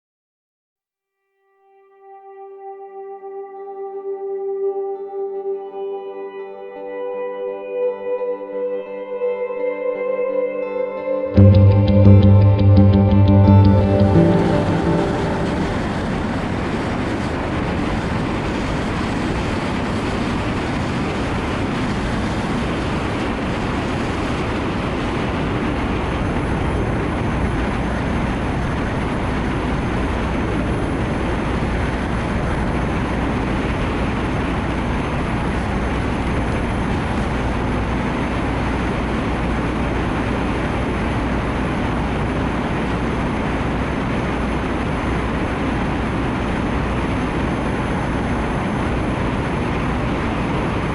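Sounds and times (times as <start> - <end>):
low rumble: 11.4 - 18.8
heavy rain: 11.5 - 50.9.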